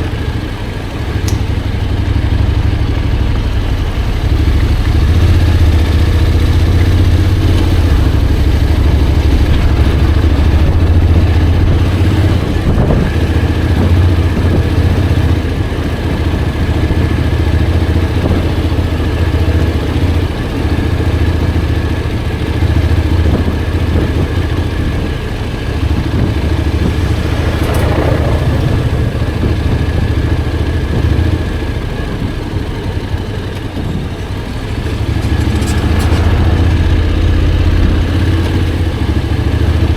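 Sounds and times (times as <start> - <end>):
motorcycle engine drone: 0.0 - 39.9.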